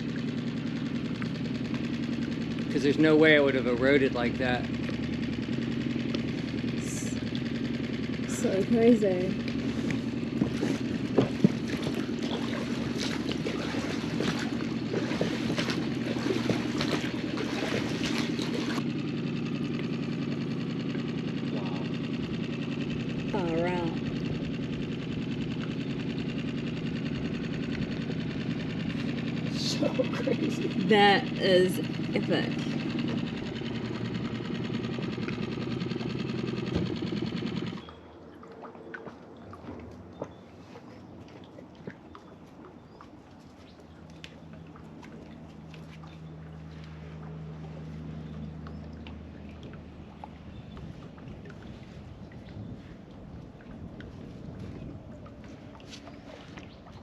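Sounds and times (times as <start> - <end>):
small engine running: 0.0 - 38.2, 43.8 - 57.0
water trickling over rock: 33.1 - 57.0.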